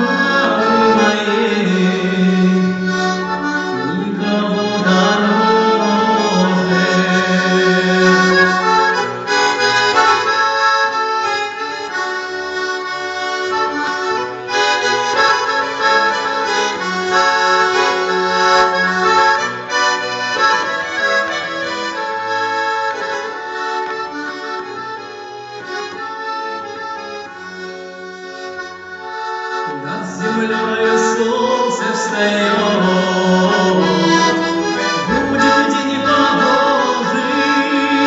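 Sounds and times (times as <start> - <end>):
accordion playing a melody: 0.0 - 38.0.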